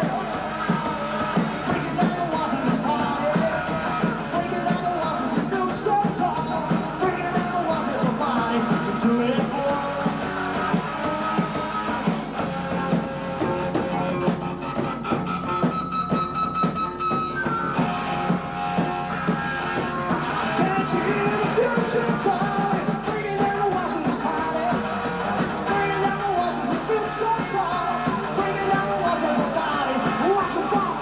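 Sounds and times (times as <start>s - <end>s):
person singing: 0.0s - 12.2s, 20.3s - 31.0s
drums: 0.0s - 31.0s
electric guitars: 0.0s - 31.0s.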